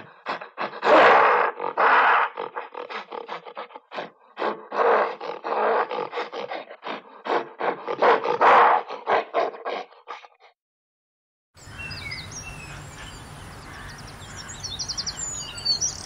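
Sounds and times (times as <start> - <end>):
animal calling: 0.0 - 7.0.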